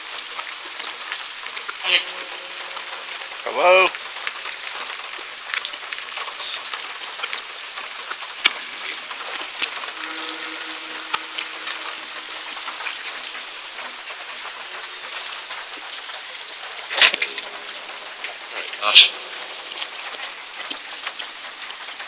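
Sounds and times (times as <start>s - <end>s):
steady rain hiss: 0.0s - 22.0s
faint steady tone: 8.6s - 16.3s.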